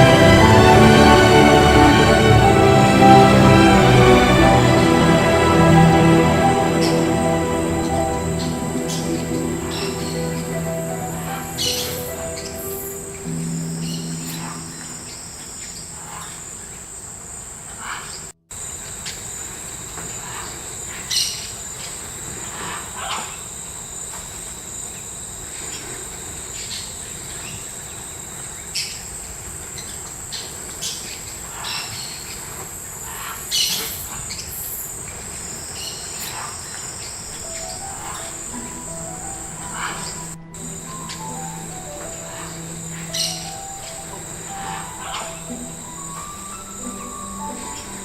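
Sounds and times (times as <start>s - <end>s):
insects droning: 37.4s - 48.0s.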